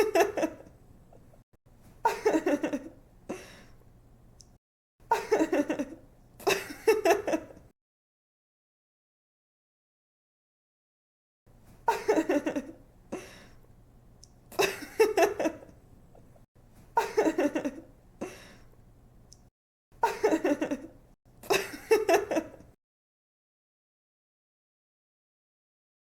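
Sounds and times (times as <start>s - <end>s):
young woman giggling: 5.1s - 7.6s, 17.0s - 17.9s.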